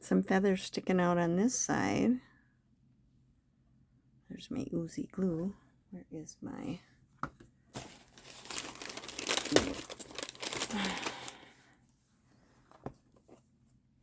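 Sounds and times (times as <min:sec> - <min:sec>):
crinkling and rustling: 0:07.7 - 0:11.5.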